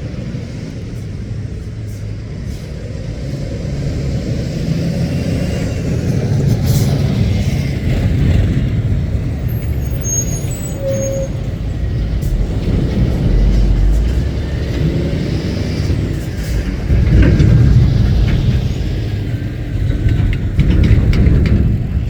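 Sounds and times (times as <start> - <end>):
lorry diesel engine running: 0.0 - 22.0
high squeaks: 9.5 - 12.0.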